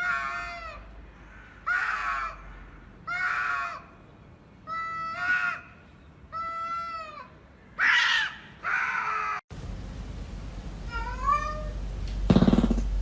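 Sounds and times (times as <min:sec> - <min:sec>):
cats meowing: 0:10.9 - 0:11.8.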